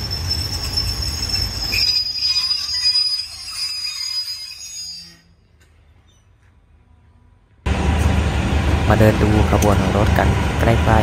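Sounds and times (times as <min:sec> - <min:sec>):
train rumble: 0:00.0 - 0:04.3, 0:05.5 - 0:11.0
wheel squeal: 0:00.0 - 0:06.4.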